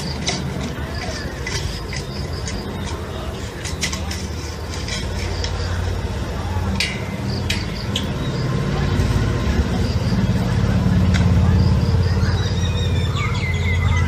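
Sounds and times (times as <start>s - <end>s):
heavy engine rumbling: 0.0s - 14.0s
sharp metallic clanks: 6.7s - 11.4s.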